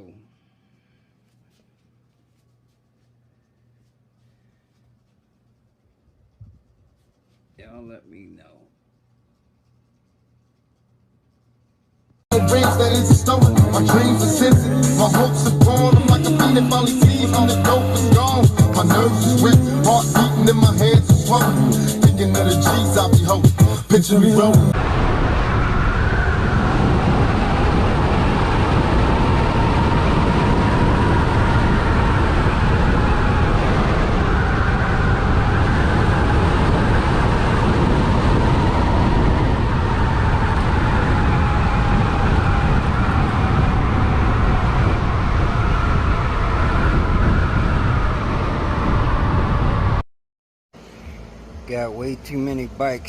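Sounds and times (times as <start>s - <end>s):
wind rush on microphone: 24.7s - 50.0s.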